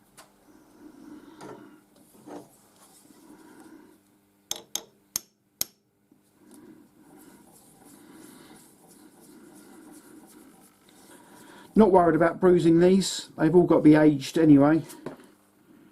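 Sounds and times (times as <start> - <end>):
handling and rubbing sounds: 2.0 - 3.7, 6.2 - 12.2.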